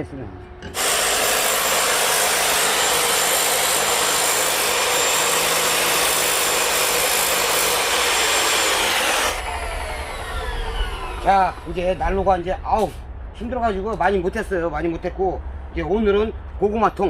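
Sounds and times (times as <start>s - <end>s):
loud steady hissing: 0.8s - 12.2s.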